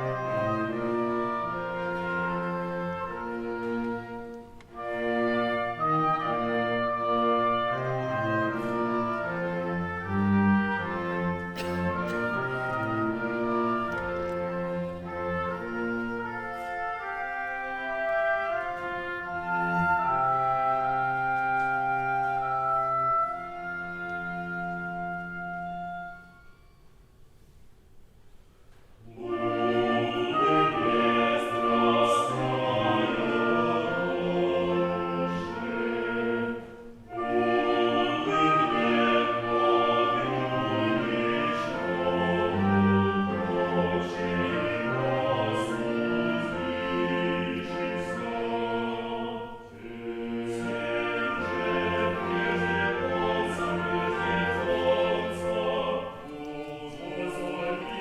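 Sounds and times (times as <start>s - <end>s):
choir singing: 0.0s - 26.2s, 29.0s - 58.0s
instrumental accompaniment: 0.0s - 58.0s.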